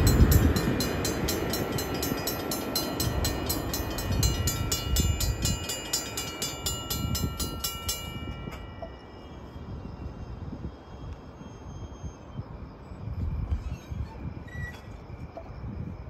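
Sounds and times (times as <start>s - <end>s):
crossing warning bell ringing: 0.0s - 10.4s
passenger train rumbling past: 0.0s - 13.5s.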